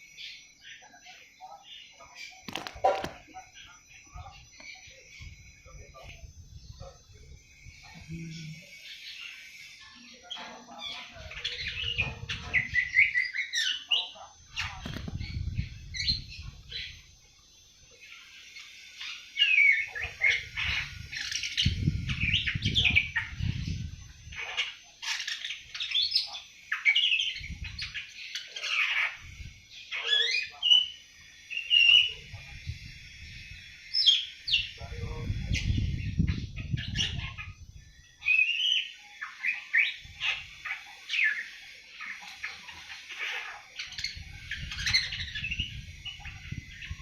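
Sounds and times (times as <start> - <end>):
young bird twittering: 0.0 - 47.0
low muffled bursts: 1.1 - 8.8.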